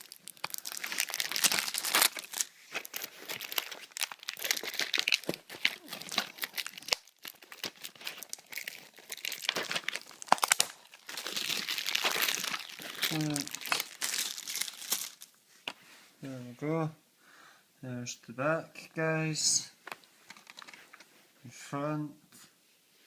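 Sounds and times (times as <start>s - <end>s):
packaging torn and crumpled: 0.0s - 15.3s.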